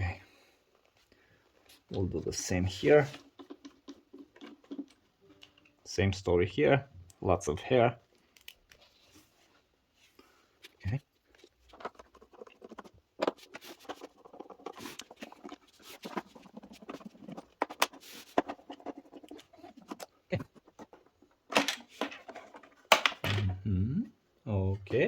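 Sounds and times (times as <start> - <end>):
plastic clicks and scrapes: 3.1 - 5.0, 10.6 - 23.2.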